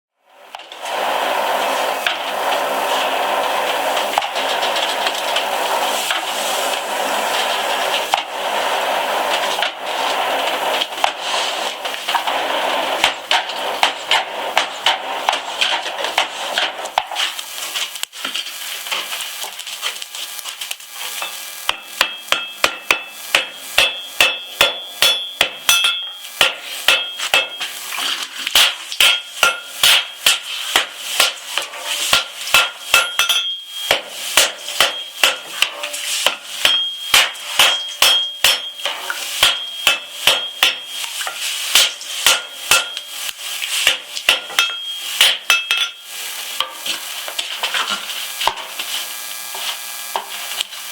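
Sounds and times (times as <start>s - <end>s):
hammer striking steel on anvil: 21.2s - 27.7s, 28.5s - 43.1s, 43.8s - 46.8s.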